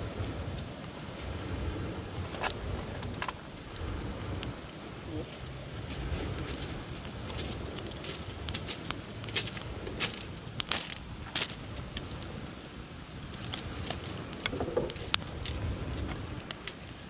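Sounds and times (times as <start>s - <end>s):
steady low rumble: 0.0s - 17.0s
sharp clicks and crackles: 7.7s - 12.2s, 13.2s - 15.6s.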